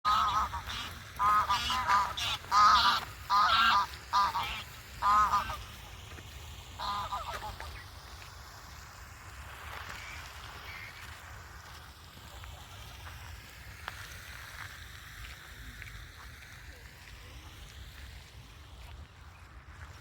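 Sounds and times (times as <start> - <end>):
geese honking: 0.1 - 5.8, 6.8 - 8.0.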